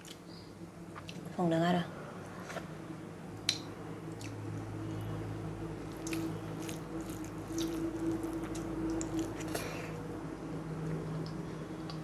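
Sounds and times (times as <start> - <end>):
person chewing food: 3.4 - 5.2, 5.8 - 10.0.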